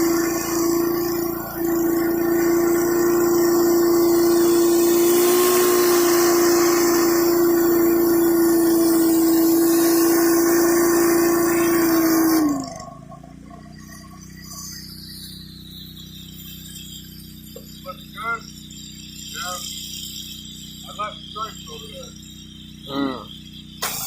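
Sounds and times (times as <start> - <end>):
high-pressure water spraying: 0.0 - 12.8, 22.8 - 24.0
pressure washer engine whine: 0.0 - 24.0.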